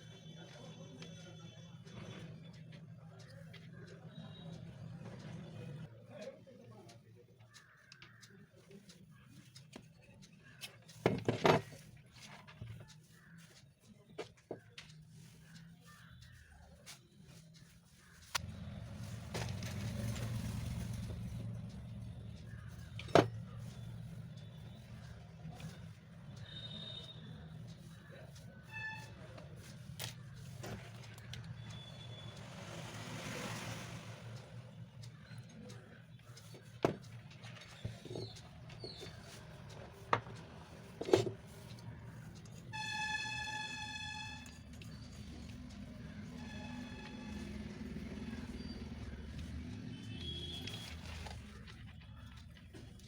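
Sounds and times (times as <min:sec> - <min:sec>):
steady horn-like tone: 0:42.7 - 0:44.5.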